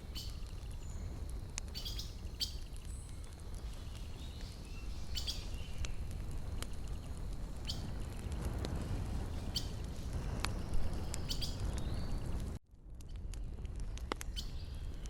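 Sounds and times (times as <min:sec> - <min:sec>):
fire crackling and popping: 0:00.0 - 0:15.0
bird chirps: 0:01.7 - 0:03.1, 0:03.7 - 0:05.9.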